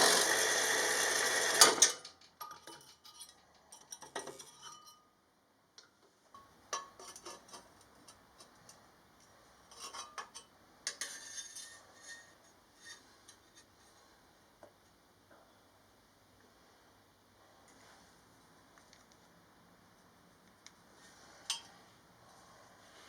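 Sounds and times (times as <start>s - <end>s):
metallic clinks and taps: 21.5s - 21.8s.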